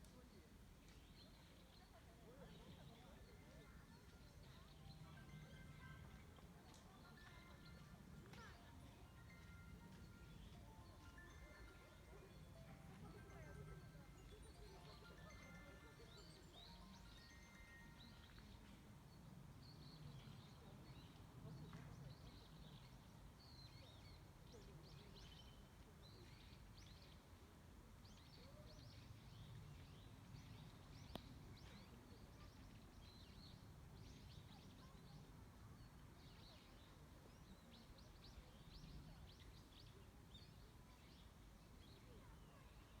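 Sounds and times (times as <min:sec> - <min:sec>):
small birds chirping: 0:00.1 - 0:43.0.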